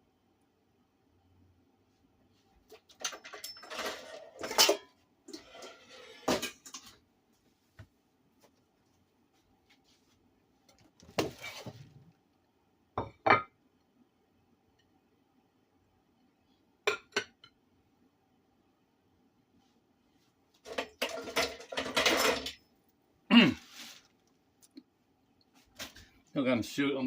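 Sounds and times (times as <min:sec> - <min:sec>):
utensils clinking against dishes: 0:02.9 - 0:07.0, 0:20.7 - 0:22.6.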